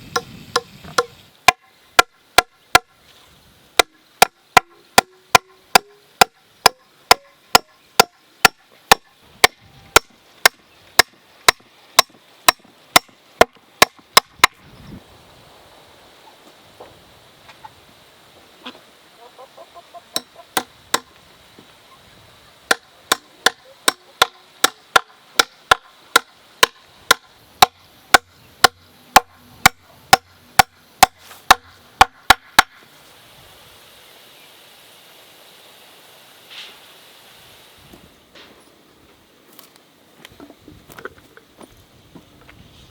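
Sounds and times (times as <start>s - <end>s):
tool striking wood: 0.1s - 2.9s, 3.8s - 14.6s, 22.7s - 32.8s.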